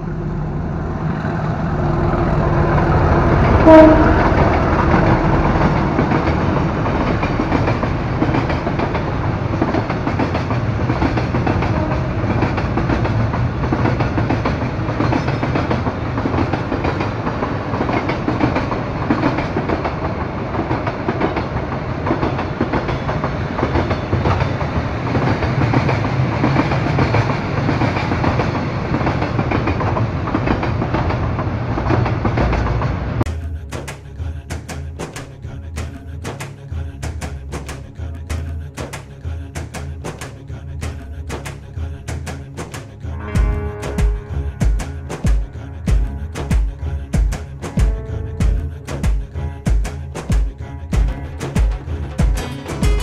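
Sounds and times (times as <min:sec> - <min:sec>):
locomotive engine rumbling: 0:00.0 - 0:53.0
locomotive horn: 0:01.9 - 0:07.0, 0:11.4 - 0:12.8, 0:43.1 - 0:46.3
freight train wheels clattering: 0:02.0 - 0:33.2.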